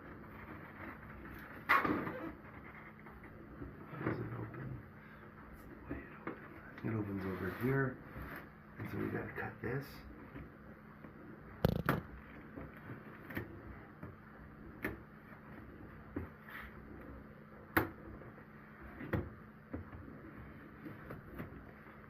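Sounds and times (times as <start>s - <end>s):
knocks and clicks on cardboard box: 11.6s - 12.1s.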